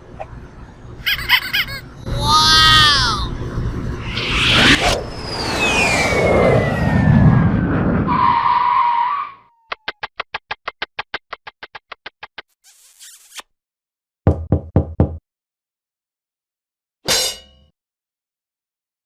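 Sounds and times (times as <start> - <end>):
heavy knocks: 14.3 - 15.2.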